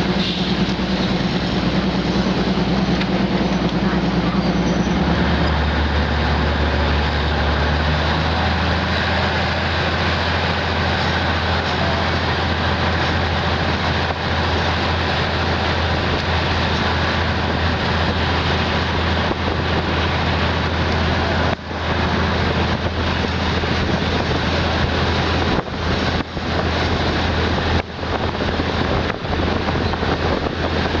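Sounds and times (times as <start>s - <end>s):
low drone: 0.0s - 31.0s
train rumble and hiss: 0.0s - 31.0s.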